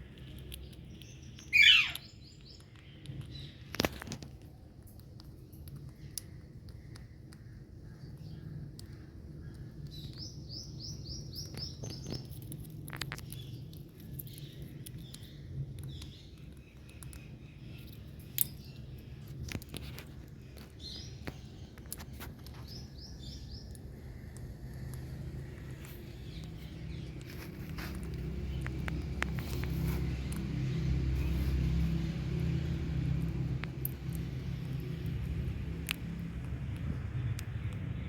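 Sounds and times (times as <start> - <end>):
parrot chirping: 1.4 - 2.2.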